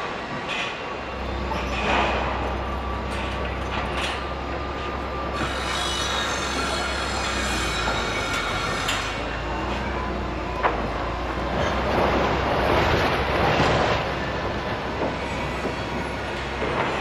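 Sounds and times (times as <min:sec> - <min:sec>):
heavy machinery rumbling: 0:00.0 - 0:17.0.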